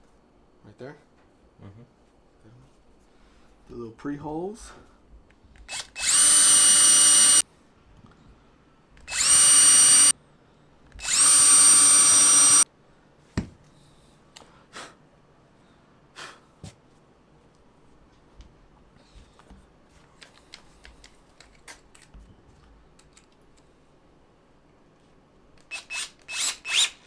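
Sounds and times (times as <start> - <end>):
power drill whining: 5.7 - 7.4, 9.0 - 10.1, 11.0 - 12.6, 25.7 - 27.0.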